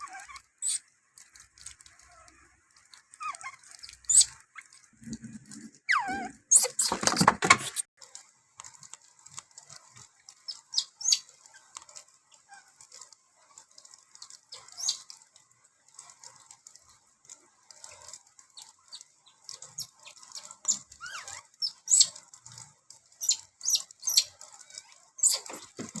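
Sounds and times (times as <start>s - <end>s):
baby monkey chirps and clicks: 0.0s - 4.8s, 5.8s - 7.9s, 10.3s - 12.7s, 14.2s - 15.2s, 17.8s - 26.0s
baby monkey squealing: 3.2s - 4.4s, 5.9s - 7.8s, 20.7s - 22.1s, 25.2s - 25.6s.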